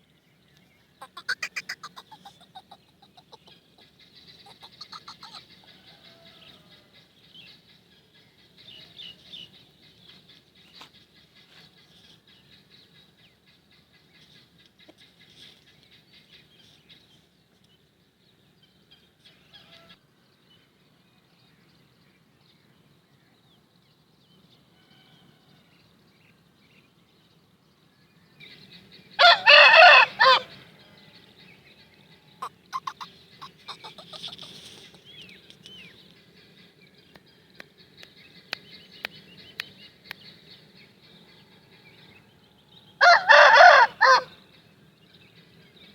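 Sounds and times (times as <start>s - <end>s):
faint clucks and chirps: 0.0s - 20.7s, 22.7s - 45.9s
rooster crowing: 4.9s - 6.9s, 29.2s - 30.5s, 43.0s - 44.3s.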